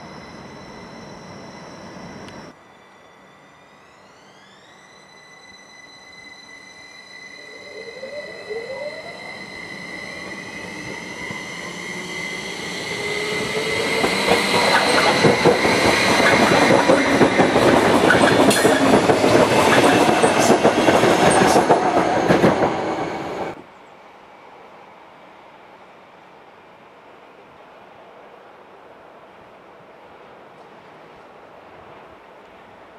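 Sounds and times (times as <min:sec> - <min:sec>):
high electric whine: 0:00.0 - 0:13.7
electric train passing: 0:00.0 - 0:32.9
train cars clattering over rail joints: 0:14.0 - 0:22.8.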